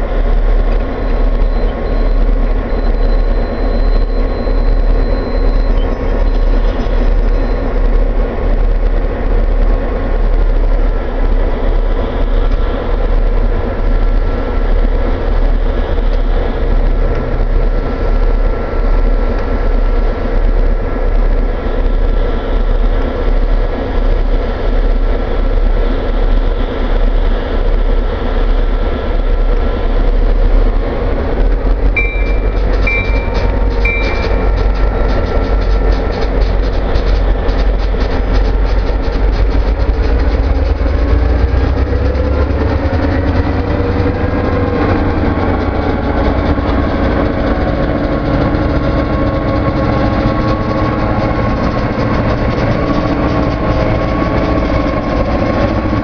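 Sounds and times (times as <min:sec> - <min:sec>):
freight train rumbling past: 0:00.0 - 0:56.0
train wheel squeals: 0:00.8 - 0:08.1, 0:32.0 - 0:56.0.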